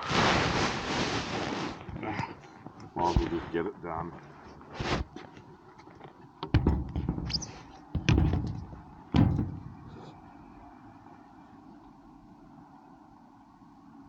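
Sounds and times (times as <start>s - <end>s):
short hiss: 0.0s - 2.0s
heavy clunks: 6.4s - 10.2s.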